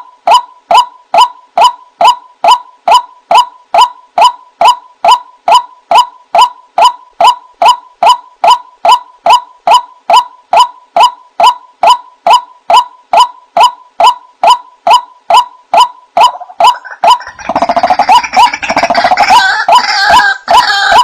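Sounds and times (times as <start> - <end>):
waterhen call: 15.3 - 21.0.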